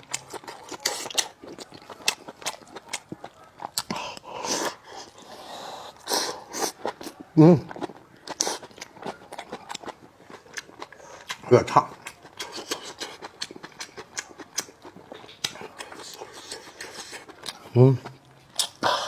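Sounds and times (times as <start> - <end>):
person biting and chewing: 0.0 - 5.3, 6.0 - 17.7, 18.5 - 19.0
wet mouth clicks and smacks: 11.2 - 17.6, 18.6 - 18.9.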